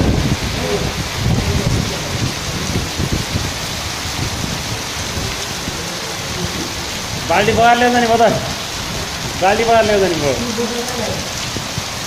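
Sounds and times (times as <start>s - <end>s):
heavy rain: 0.0s - 12.0s
low rumbling: 0.0s - 12.0s.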